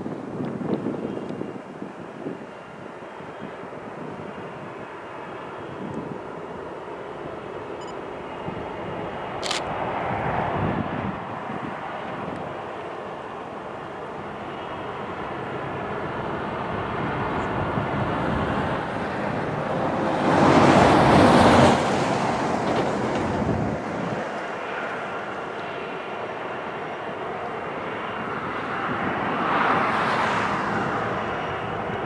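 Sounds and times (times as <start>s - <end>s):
freight train rumbling past: 6.3s - 32.0s
loud rush of noise: 14.2s - 26.6s.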